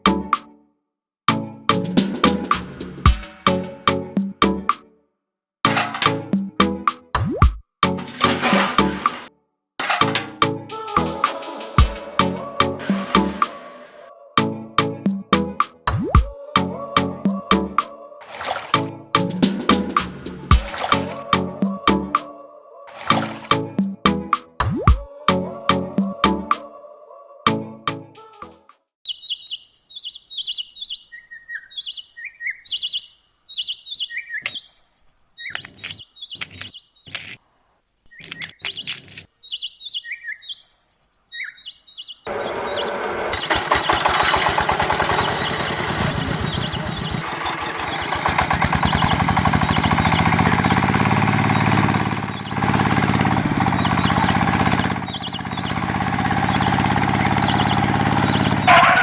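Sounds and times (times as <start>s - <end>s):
birds chirping: 29.0s - 37.4s, 38.0s - 59.0s
sharp clicks: 34.4s - 34.7s, 35.4s - 37.4s, 38.1s - 39.3s
loud mechanical noise: 42.3s - 59.0s
low hum rising in pitch: 48.7s - 59.0s.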